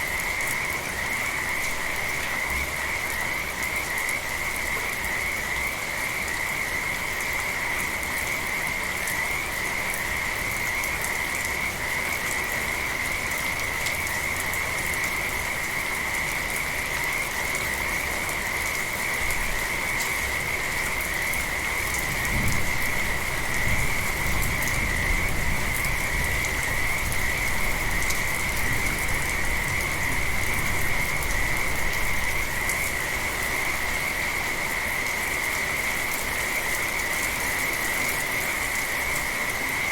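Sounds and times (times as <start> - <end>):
light rain: 0.0 - 39.9.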